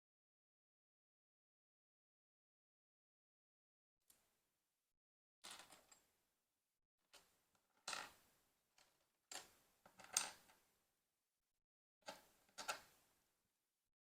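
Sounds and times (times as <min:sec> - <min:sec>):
plastic toy bricks clattering: 0:09.3 - 0:10.5.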